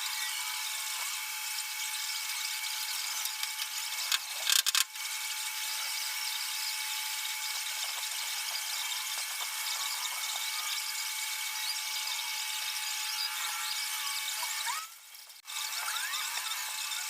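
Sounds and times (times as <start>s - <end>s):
power tool whining and hissing: 5.0s - 17.0s.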